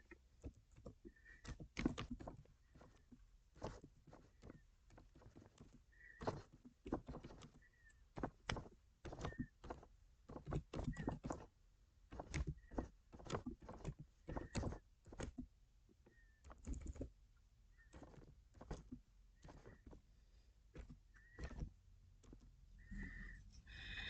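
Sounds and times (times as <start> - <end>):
typing taps and clicks: 3.6 - 11.5, 12.1 - 15.4, 16.0 - 17.1.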